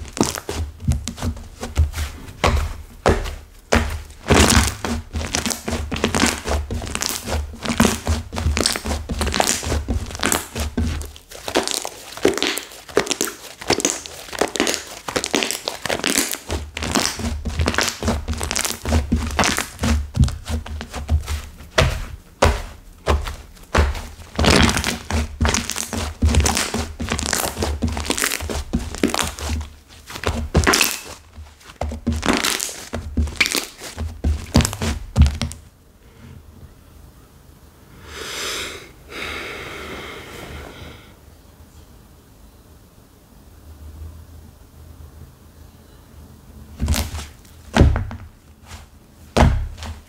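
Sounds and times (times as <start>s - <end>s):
slime squished by hand: 0.0s - 35.5s
soft rustling: 0.0s - 36.5s, 46.8s - 50.0s.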